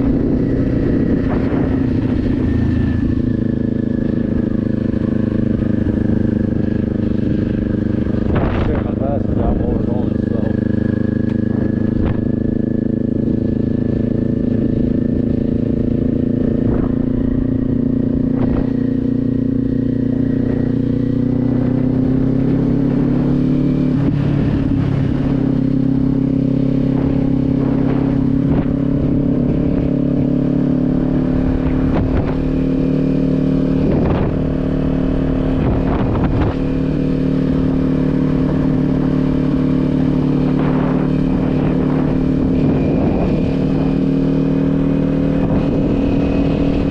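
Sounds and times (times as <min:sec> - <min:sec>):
wind gusts on microphone: 0:00.0 - 0:04.5, 0:05.5 - 0:10.5, 0:15.8 - 0:19.4, 0:23.9 - 0:46.9
motorcycle engine cruising: 0:00.0 - 0:46.9.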